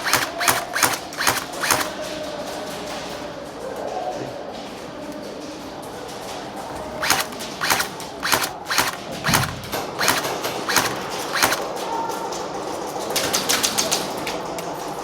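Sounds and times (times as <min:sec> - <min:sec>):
sharp clacks: 0:00.0 - 0:02.1, 0:07.0 - 0:11.8.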